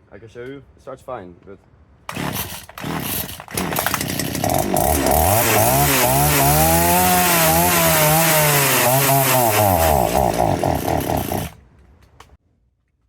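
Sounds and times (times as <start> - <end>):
chainsaw revving: 2.1 - 11.6.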